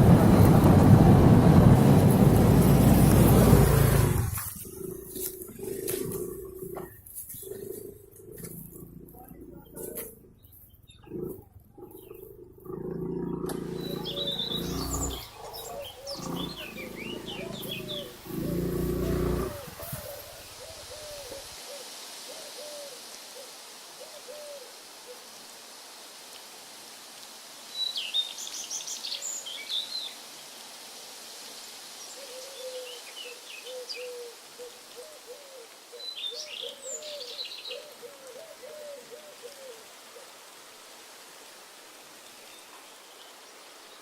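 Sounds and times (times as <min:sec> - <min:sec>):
background hiss: 0:00.0 - 0:44.0
high bird chirps: 0:13.2 - 0:18.7.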